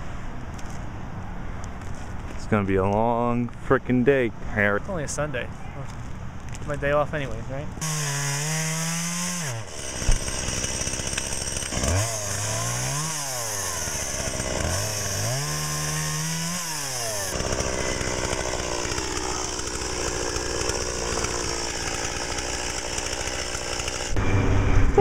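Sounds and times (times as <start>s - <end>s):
chainsaw revving: 7.8s - 24.2s.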